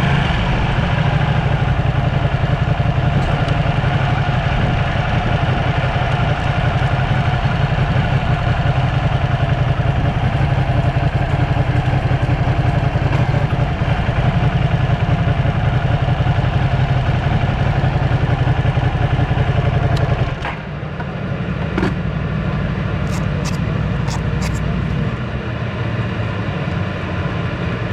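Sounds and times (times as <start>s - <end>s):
motorcycle engine running: 0.0s - 20.4s, 23.0s - 25.0s.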